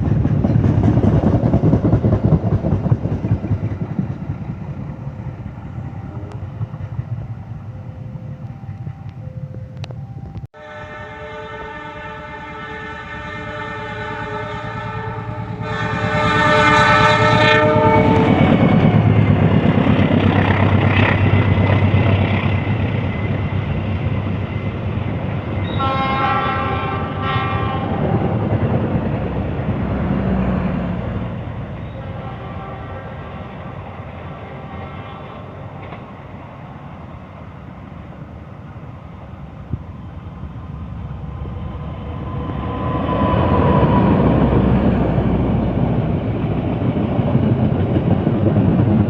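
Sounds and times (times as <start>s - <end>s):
train engine and wheel rumble: 0.0s - 49.0s
diesel locomotive horn: 9.8s - 19.3s, 25.6s - 28.5s, 29.9s - 36.1s.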